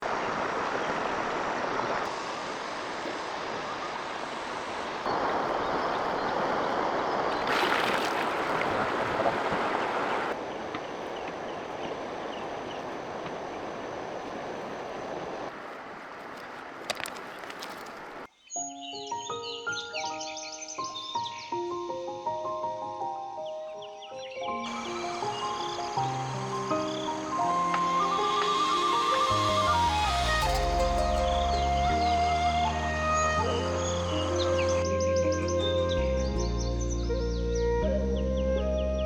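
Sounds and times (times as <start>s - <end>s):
flowing water: 0.0s - 18.3s, 24.6s - 35.9s
faint bird chirps: 23.8s - 38.4s.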